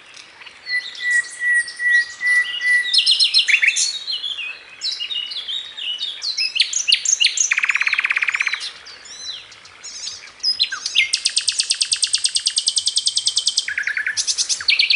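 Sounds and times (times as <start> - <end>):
bird whistles and chirps: 0.6 - 14.9
fast bird trill: 7.4 - 8.6.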